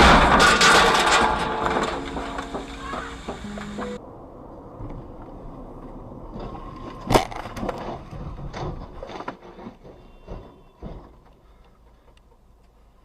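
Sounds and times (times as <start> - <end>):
vehicle crash bang: 0.0 - 4.0.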